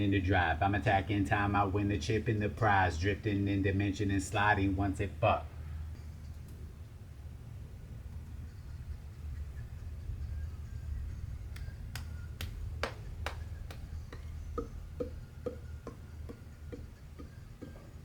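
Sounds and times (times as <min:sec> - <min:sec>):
low steady hum: 0:00.0 - 0:18.0
sharp snapping clicks: 0:11.5 - 0:14.3.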